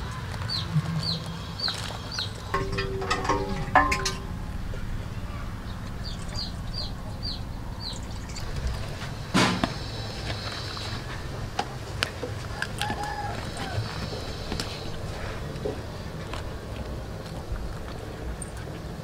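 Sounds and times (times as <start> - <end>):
small bird chirping: 5.8 - 8.8.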